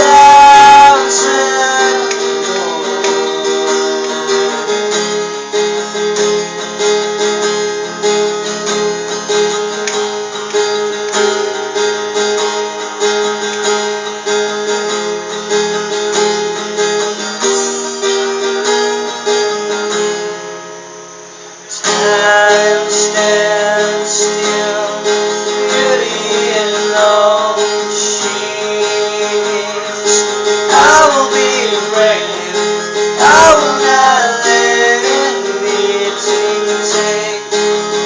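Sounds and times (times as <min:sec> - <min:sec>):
acoustic guitar strumming: 0:00.0 - 0:38.0.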